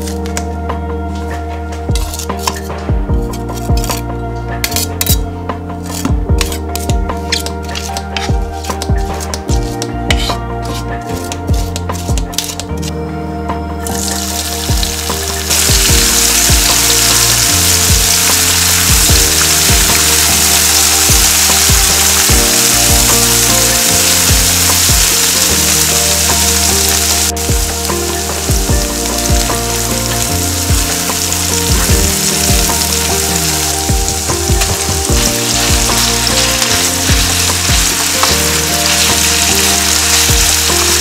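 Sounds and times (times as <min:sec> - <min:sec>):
background music with held notes: 0:00.0 - 0:41.0
food sizzling in hot oil: 0:13.9 - 0:41.0.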